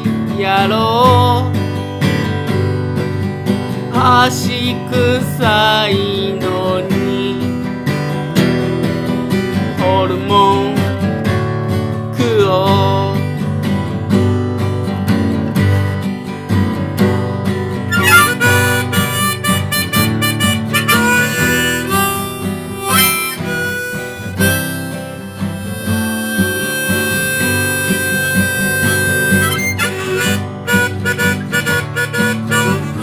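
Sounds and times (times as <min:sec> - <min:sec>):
strummed acoustic guitar: 0:00.0 - 0:33.0
harmonica melody: 0:17.8 - 0:33.0.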